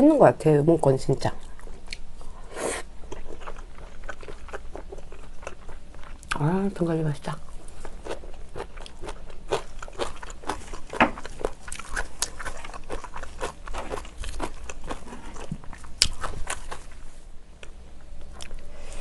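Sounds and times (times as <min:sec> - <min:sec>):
chewing and biting ribs: 0:02.9 - 0:06.4, 0:07.5 - 0:18.6.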